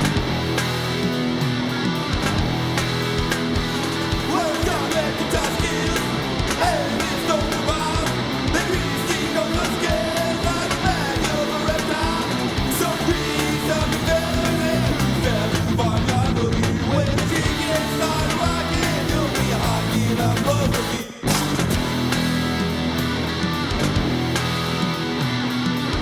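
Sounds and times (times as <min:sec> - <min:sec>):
punk rock song: 0:00.0 - 0:26.0
shouted lead vocal: 0:03.1 - 0:22.4.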